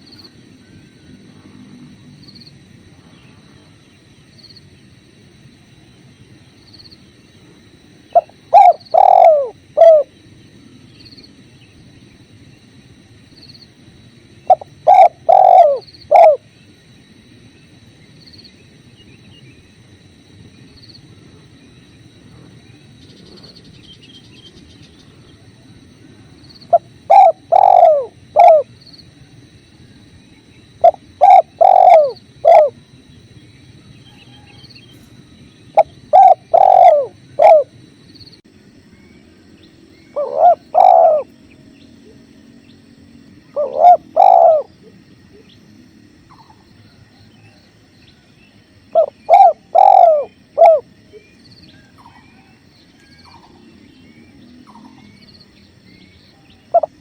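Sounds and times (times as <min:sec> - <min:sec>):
dove cooing: 0:08.0 - 0:10.2, 0:14.4 - 0:16.6, 0:25.4 - 0:30.0, 0:30.6 - 0:32.9, 0:35.7 - 0:37.8, 0:40.0 - 0:45.6, 0:46.2 - 0:55.2, 0:55.9 - 0:57.0.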